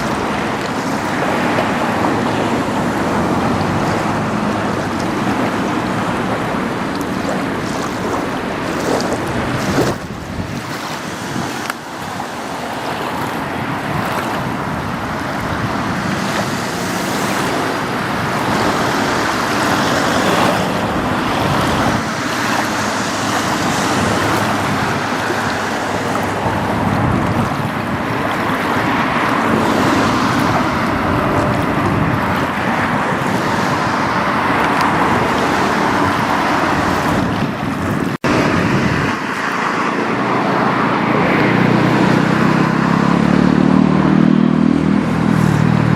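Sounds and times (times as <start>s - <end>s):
road and tyre noise: 0.0s - 45.9s.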